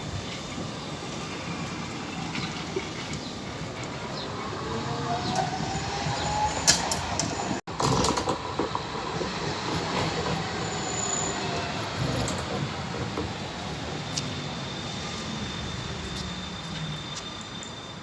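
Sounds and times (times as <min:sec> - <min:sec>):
tram wheels rumbling on rails: 0:00.0 - 0:18.0
high wheel squeal: 0:04.6 - 0:07.6, 0:09.7 - 0:18.0.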